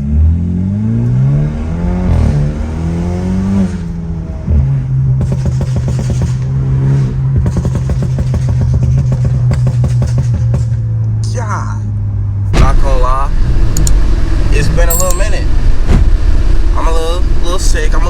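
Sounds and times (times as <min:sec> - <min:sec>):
car engine revving: 0:00.0 - 0:11.3, 0:12.0 - 0:18.0
exhaust crackles and pops: 0:04.6 - 0:06.6.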